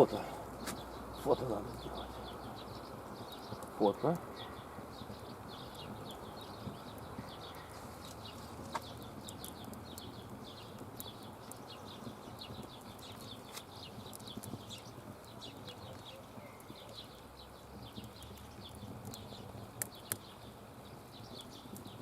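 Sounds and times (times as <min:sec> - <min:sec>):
small birds chirping: 0:00.0 - 0:22.0
sharp clicks: 0:08.0 - 0:11.6, 0:17.9 - 0:20.3.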